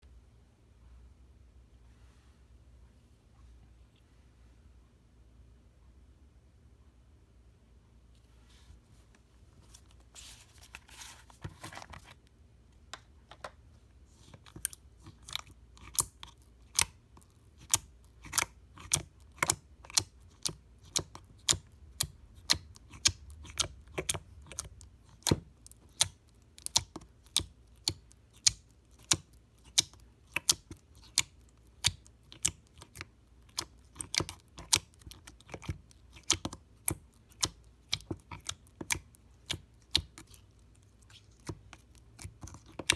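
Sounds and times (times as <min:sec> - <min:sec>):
soft rustle: 0:01.8 - 0:04.6, 0:08.2 - 0:12.3
slime squished with clicking pops: 0:14.6 - 0:40.4.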